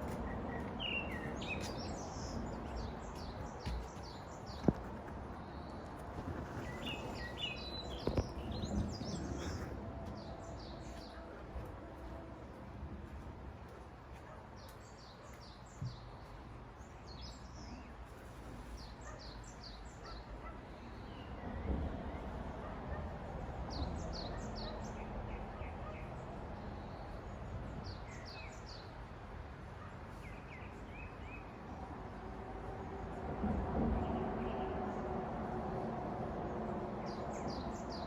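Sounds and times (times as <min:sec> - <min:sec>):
small birds chirping: 0:00.0 - 0:11.3
traffic rumble: 0:00.0 - 0:38.0.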